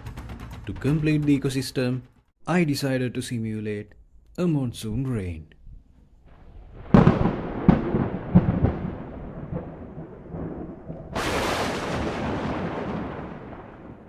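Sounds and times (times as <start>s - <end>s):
thunder cracks and rumble: 6.3s - 14.0s.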